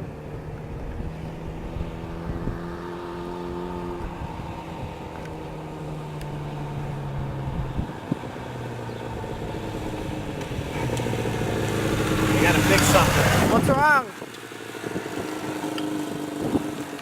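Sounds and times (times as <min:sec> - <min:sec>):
motorcycle engine idling: 0:04.9 - 0:17.0.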